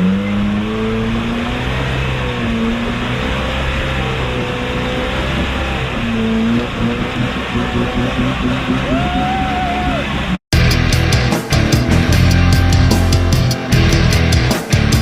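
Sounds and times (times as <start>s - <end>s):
truck engine revving: 0.0s - 15.0s
heavy rock music: 10.5s - 15.0s.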